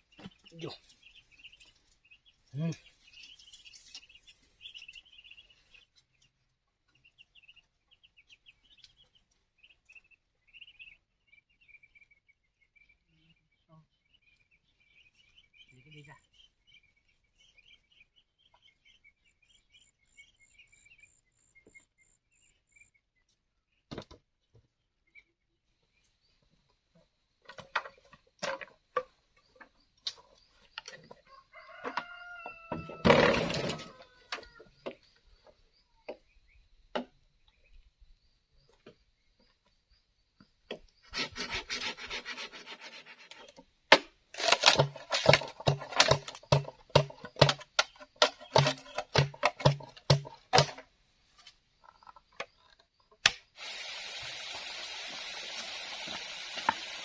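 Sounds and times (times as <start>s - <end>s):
birds chirping faintly: 0.0s - 43.9s
rooster crowing: 31.3s - 34.6s.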